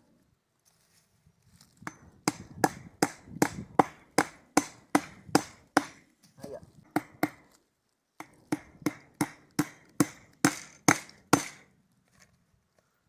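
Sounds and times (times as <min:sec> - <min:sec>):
hammer striking wooden post: 0:01.8 - 0:06.1, 0:06.9 - 0:07.5, 0:08.2 - 0:11.7.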